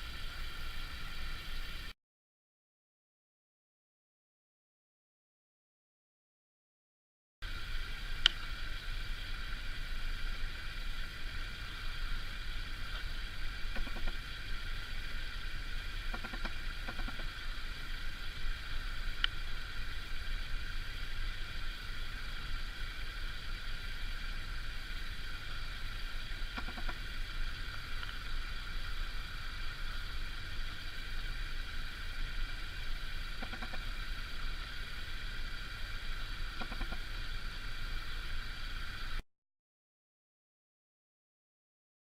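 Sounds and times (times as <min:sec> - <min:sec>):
woodpecker tapping: 0:13.7 - 0:14.2, 0:16.1 - 0:17.3, 0:26.6 - 0:27.0, 0:33.4 - 0:33.8, 0:36.6 - 0:37.0.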